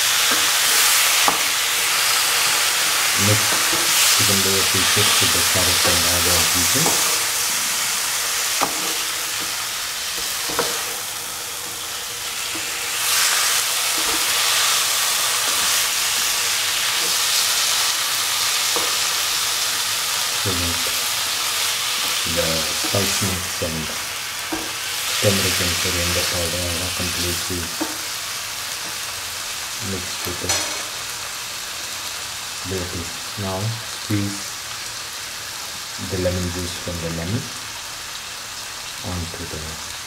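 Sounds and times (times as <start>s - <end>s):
food sizzling in hot oil: 0.0s - 40.0s
utensil knocking on pan: 8.6s - 9.6s.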